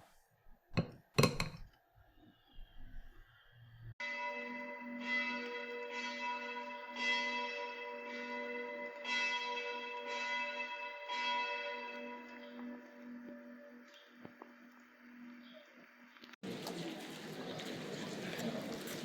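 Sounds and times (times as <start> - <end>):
church bell ringing: 4.0 - 15.6.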